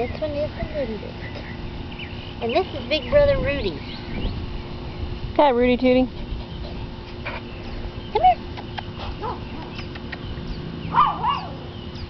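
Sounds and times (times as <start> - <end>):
puppies whining and yipping: 6.4 - 12.0.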